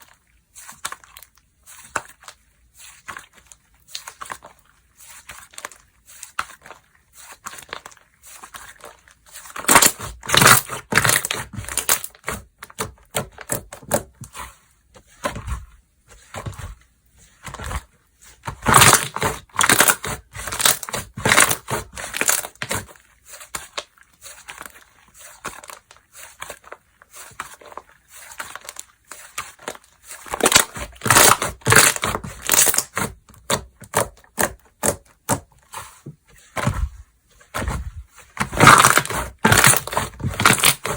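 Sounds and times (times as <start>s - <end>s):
slime crackling and popping: 9.4s - 14.1s, 18.6s - 24.6s, 28.3s - 35.4s, 38.4s - 40.9s.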